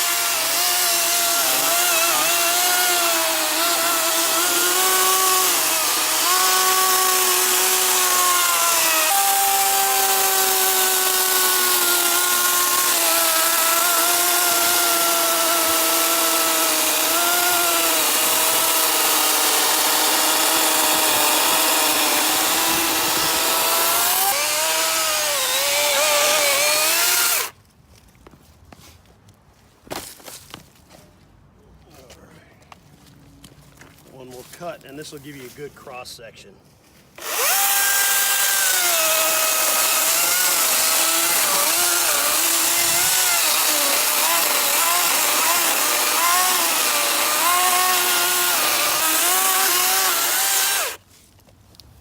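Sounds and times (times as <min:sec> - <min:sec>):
chainsaw cutting wood: 0:00.0 - 0:27.6, 0:37.2 - 0:51.0.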